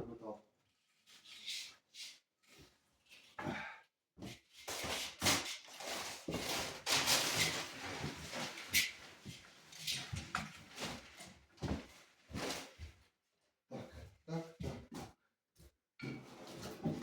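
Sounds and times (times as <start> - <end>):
material rustling and scraping: 4.6 - 13.0.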